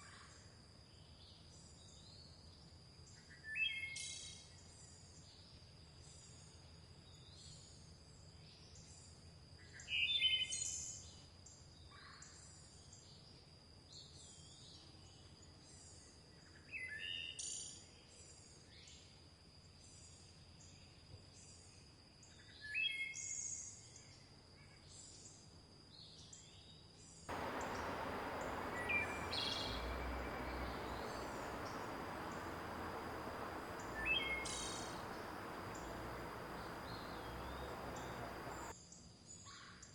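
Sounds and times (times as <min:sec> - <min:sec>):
river water rushing: 0:27.3 - 0:38.7
soft bird chirps: 0:27.3 - 0:38.7
bird singing loud short phrase: 0:27.4 - 0:38.7.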